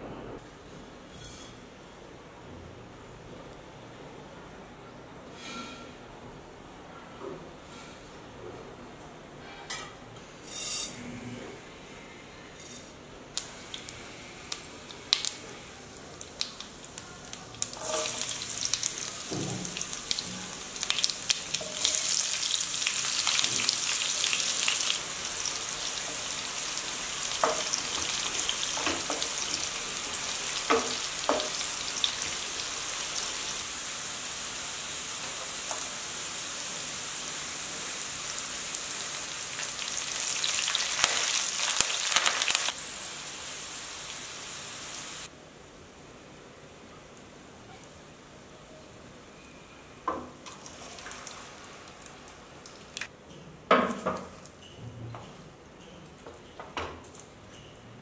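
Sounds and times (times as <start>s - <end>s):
onions sizzling in a pan: 13.4s - 45.4s, 49.2s - 53.1s
seeds crackling and popping in oil: 39.5s - 42.8s.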